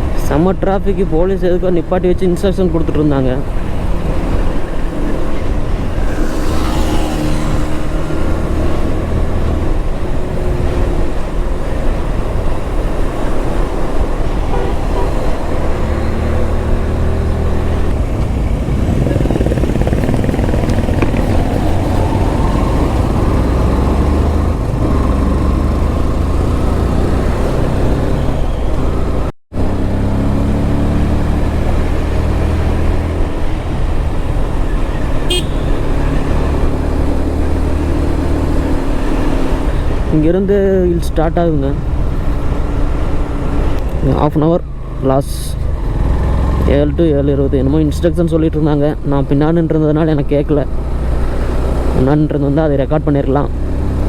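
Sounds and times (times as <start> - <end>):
road traffic: 0.0 - 54.0
motorcycle engine running: 3.7 - 28.6, 29.7 - 39.2.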